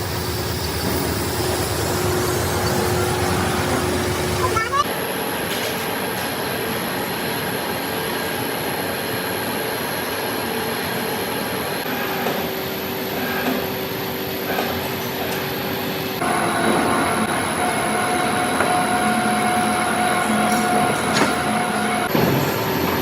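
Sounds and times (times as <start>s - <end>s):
metal-cutting machine running: 0.0s - 4.7s, 11.8s - 23.0s.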